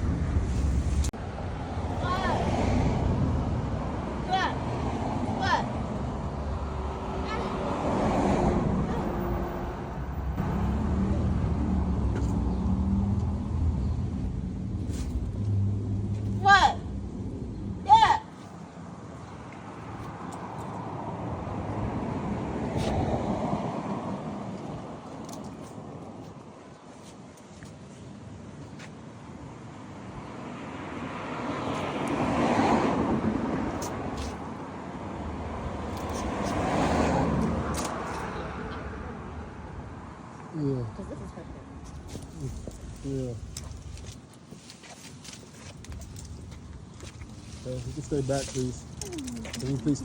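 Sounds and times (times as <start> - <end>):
vehicle approaching: 0.0 - 17.9.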